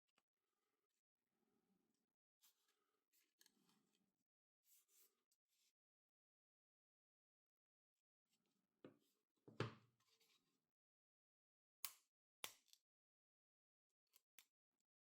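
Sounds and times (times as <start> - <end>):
objects knocking and tapping: 9.5 - 9.8.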